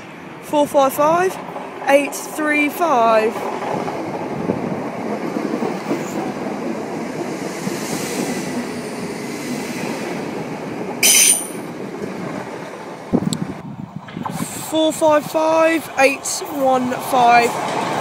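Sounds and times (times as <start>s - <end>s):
train wheels rumbling on rails: 0.0s - 18.0s
high wheel squeal: 11.0s - 11.6s.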